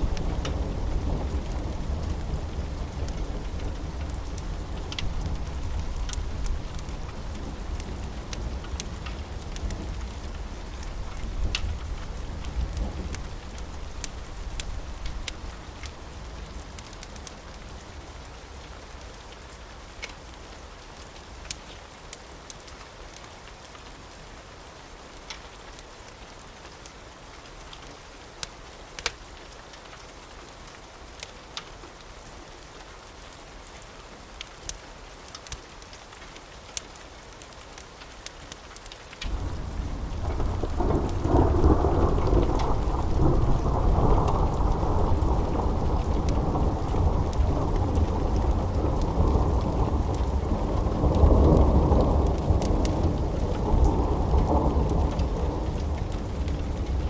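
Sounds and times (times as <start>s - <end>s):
deep rumble of thunder: 0.0s - 15.6s, 39.3s - 57.0s
wood fire crackling: 0.0s - 24.6s, 25.2s - 57.0s
steady rain: 0.0s - 57.0s.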